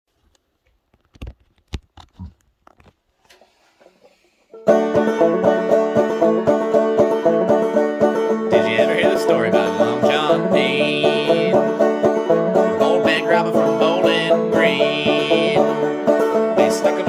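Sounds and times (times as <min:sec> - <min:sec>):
banjo frailing strum: 0:04.5 - 0:17.0.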